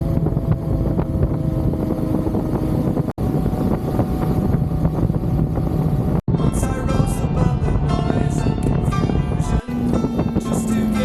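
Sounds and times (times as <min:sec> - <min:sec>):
motorcycle engine running: 0:00.0 - 0:06.2, 0:08.4 - 0:11.0
wind on microphone: 0:00.0 - 0:11.0.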